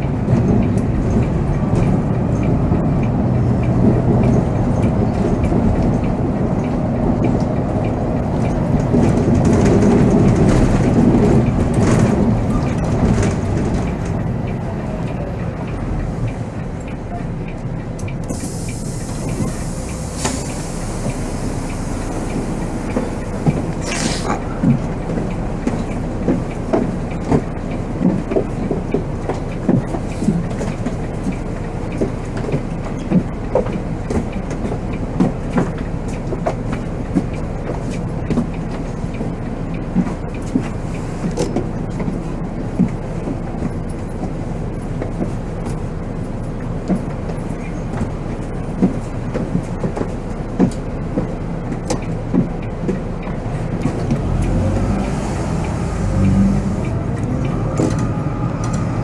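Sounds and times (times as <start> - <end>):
coach engine and road drone: 0.0 - 59.0
body rattles and knocks: 8.0 - 14.2, 22.8 - 55.0.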